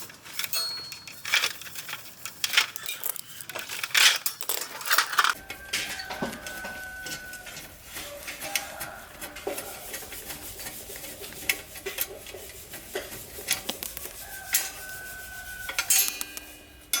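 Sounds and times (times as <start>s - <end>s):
metallic clinks of tools: 0.3s - 1.9s, 15.7s - 17.0s
ringing metal tone: 0.5s - 1.3s, 14.5s - 17.0s.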